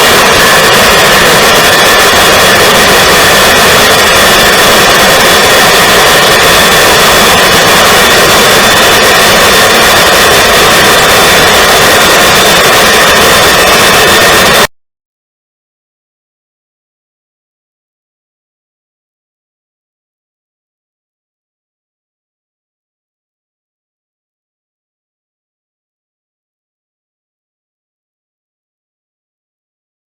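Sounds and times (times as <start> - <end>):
jet engine roaring with whine: 0.0 - 14.7.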